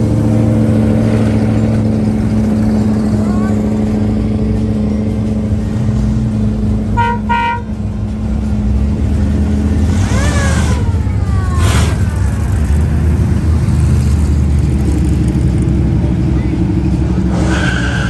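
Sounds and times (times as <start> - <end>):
car engines rumbling: 0.0 - 18.0
car horn toots: 6.9 - 7.8.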